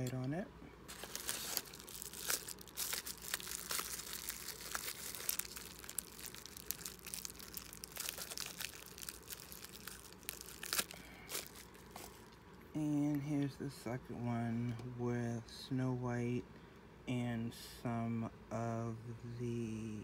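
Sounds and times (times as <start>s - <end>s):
wrapping tearing snaps: 0.9s - 12.3s
wrapping material crinkling: 0.9s - 12.4s.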